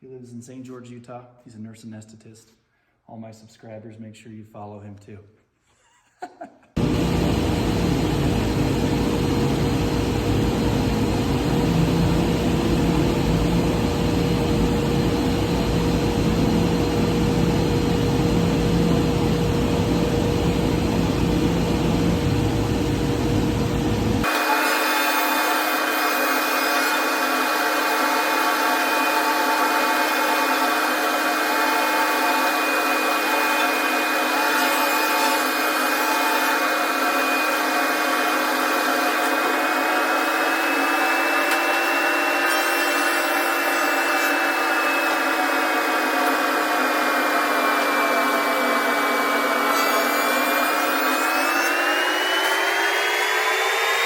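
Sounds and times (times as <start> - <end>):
table saw cutting wood: 24.2 - 54.0.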